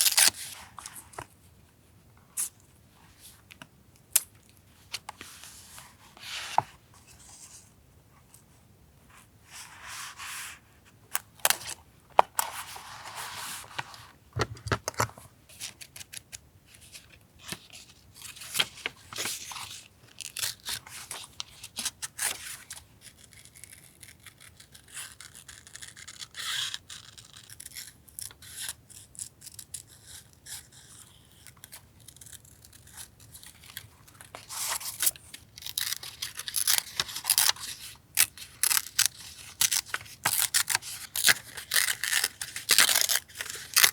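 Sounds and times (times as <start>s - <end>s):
paper rustling: 5.0s - 7.6s
paper tearing: 34.6s - 43.9s.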